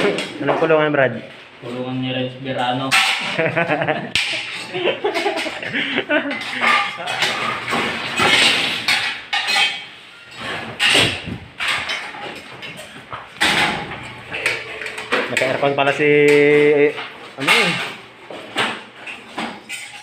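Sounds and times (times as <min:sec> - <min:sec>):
people conversing: 0:00.0 - 0:07.6, 0:13.3 - 0:18.1.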